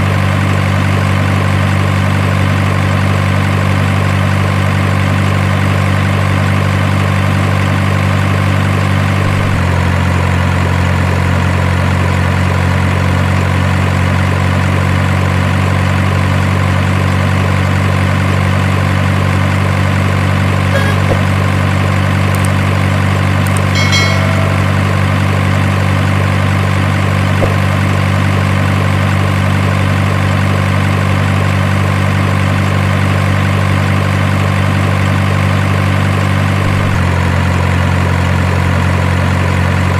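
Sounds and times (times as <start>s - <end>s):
faint short high beeps: 20.7s - 21.3s, 23.8s - 25.2s.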